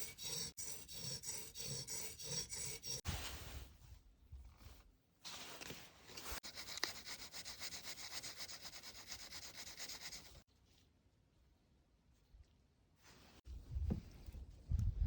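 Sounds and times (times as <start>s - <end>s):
sharpening strokes on steel blade: 0.0s - 3.0s.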